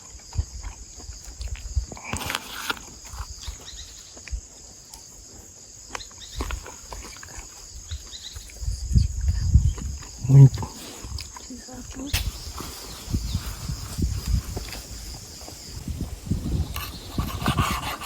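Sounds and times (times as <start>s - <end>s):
high-pitched insect chorus: 0.0s - 18.0s
noisy rustle: 12.0s - 18.0s.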